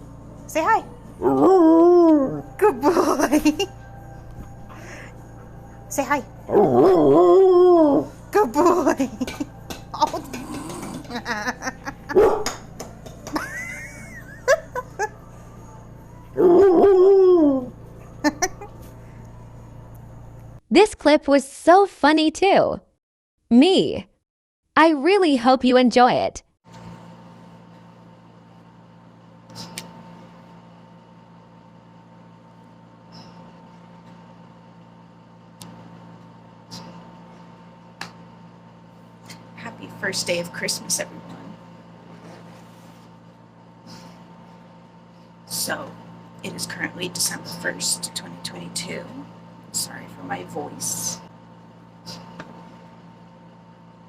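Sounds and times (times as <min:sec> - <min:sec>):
motor humming: 0:00.0 - 0:20.6
dog howl-like calls: 0:01.2 - 0:02.6, 0:06.5 - 0:08.2, 0:16.4 - 0:17.8.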